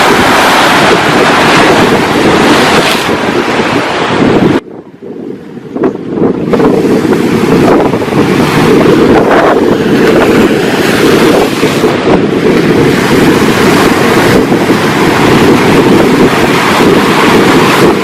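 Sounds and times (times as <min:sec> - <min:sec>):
ocean surf: 0:00.0 - 0:18.0
wind buffeting microphone: 0:00.0 - 0:18.0.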